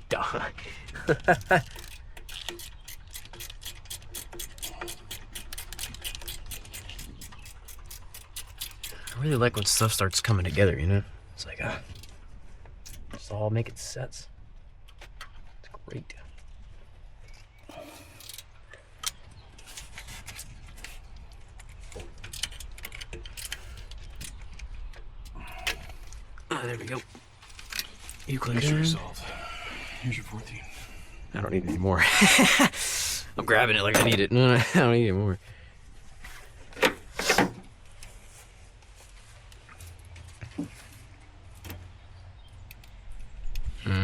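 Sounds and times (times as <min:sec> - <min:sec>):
rapid mechanical ticking: 0:01.0 - 0:10.5.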